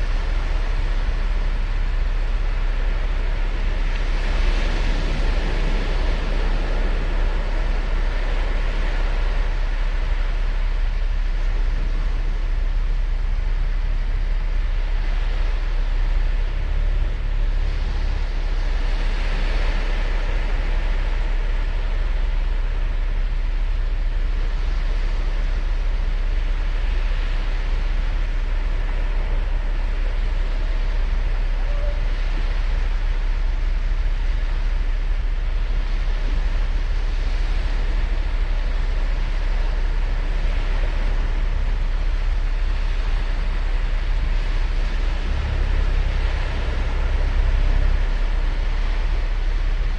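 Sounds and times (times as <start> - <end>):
low rumble: 0.0 - 49.9
ocean surf breaking: 37.2 - 49.9.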